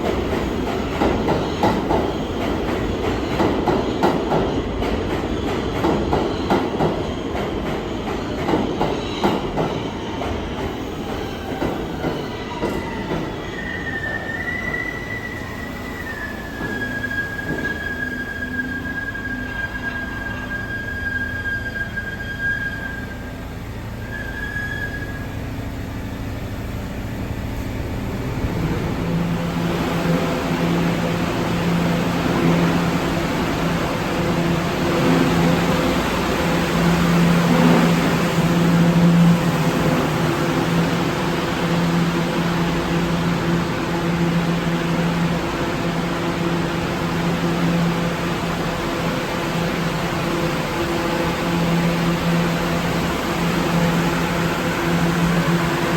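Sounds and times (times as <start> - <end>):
subway train rumbling on rails: 0.0 - 55.9
high wheel squeal: 11.1 - 25.5.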